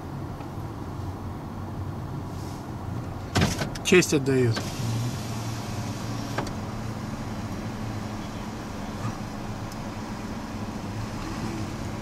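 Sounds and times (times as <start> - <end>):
car engine idling: 2.8 - 12.0.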